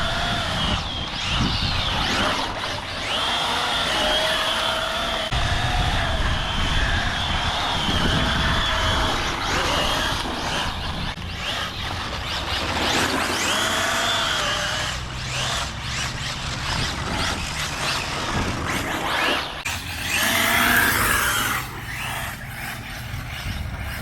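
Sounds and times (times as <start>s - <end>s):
electric motor whining: 0.0s - 24.0s
tyres scrubbing on tarmac: 9.4s - 24.0s.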